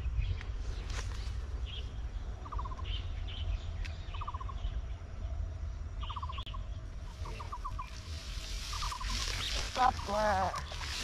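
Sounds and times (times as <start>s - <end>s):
steady low rumble: 0.0s - 11.0s
high bird chirps: 1.6s - 4.8s, 6.0s - 11.0s
bird trills: 2.4s - 4.7s, 6.0s - 8.0s, 8.6s - 11.0s.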